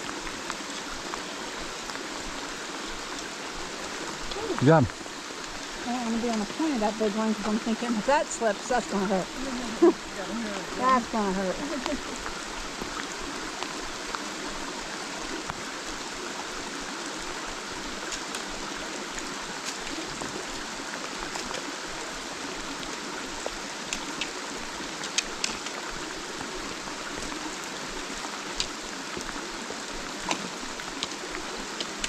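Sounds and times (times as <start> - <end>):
creek rushing: 0.0 - 32.0.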